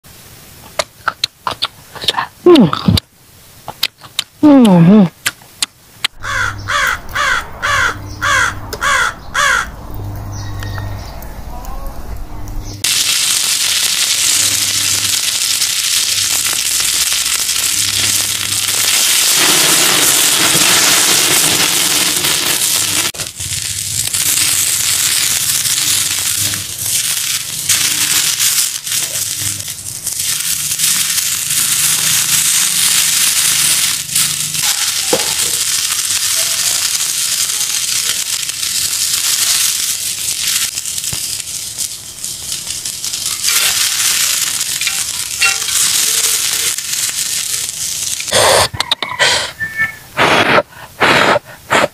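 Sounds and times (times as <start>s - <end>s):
meat sizzling on a griddle: 12.8s - 48.4s.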